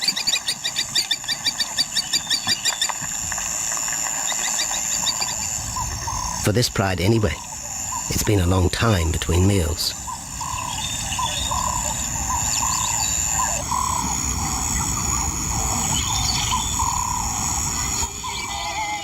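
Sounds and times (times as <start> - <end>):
bird calling: 0.0 - 19.0
high-pitched drone: 7.2 - 19.0.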